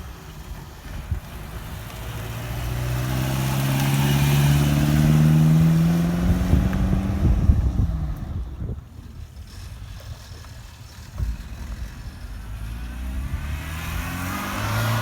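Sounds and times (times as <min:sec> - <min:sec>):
car engine accelerating past: 0:01.3 - 0:08.5, 0:12.3 - 0:15.0.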